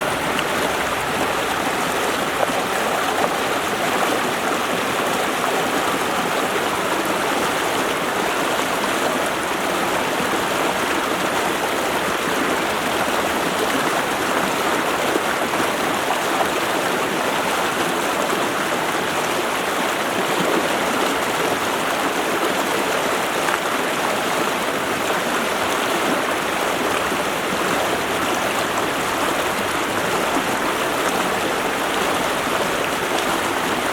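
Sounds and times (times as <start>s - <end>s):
stream rushing over rocks: 0.0s - 33.9s.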